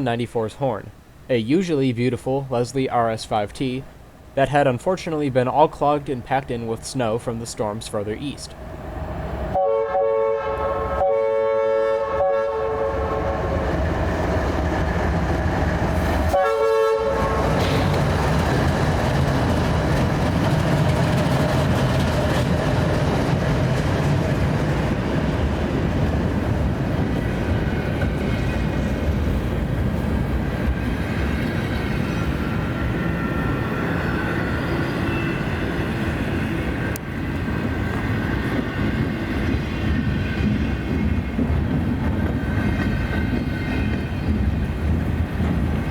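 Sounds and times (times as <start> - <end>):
locomotive air horn blasts: 9.6 - 13.3, 16.3 - 17.6
freight train rumble: 12.0 - 45.9
train wheel clatter: 17.2 - 32.4, 36.7 - 45.9.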